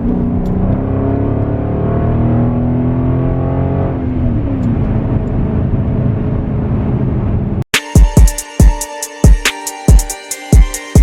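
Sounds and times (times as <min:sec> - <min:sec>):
car engine accelerating hard: 0:00.0 - 0:07.6.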